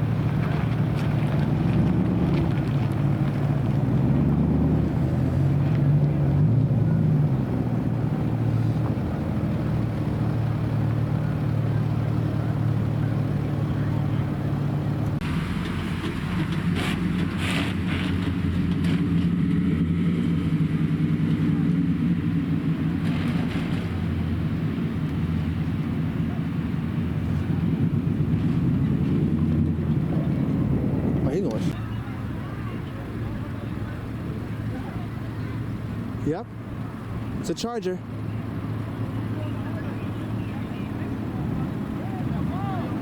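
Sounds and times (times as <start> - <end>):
car engine idling: 8.0 - 28.4.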